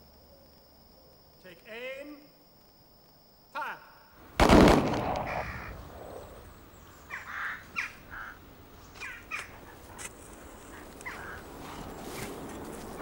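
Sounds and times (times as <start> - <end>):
birds calling: 4.3 - 13.0
gunshot echo: 4.4 - 6.2.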